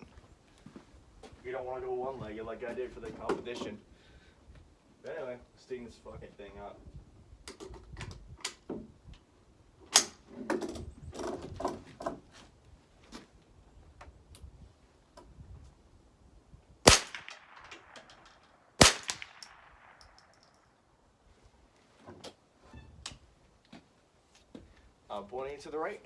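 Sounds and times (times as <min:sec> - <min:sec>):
rifle shots with echo: 0:16.8 - 0:20.6
rifle handling clicks and knocks: 0:16.9 - 0:20.8.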